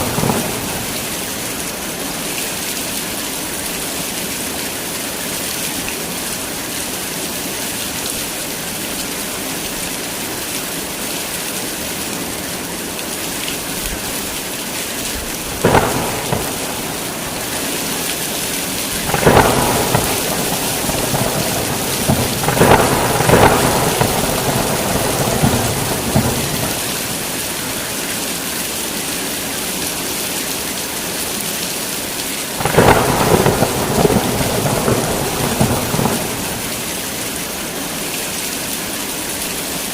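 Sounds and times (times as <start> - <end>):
thunder: 0.0 - 1.5, 15.2 - 27.9, 32.6 - 37.1
heavy rain falling: 0.0 - 39.9.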